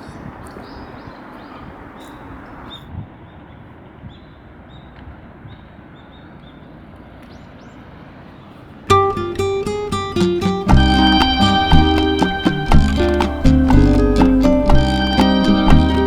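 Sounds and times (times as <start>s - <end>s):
steady background hiss: 8.8s - 16.0s.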